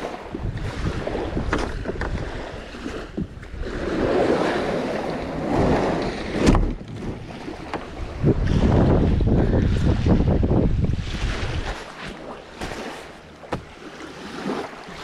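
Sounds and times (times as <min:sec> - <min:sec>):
wind buffeting microphone: 0:00.0 - 0:11.9
water noise: 0:00.0 - 0:15.0
light knocks: 0:13.5 - 0:13.7.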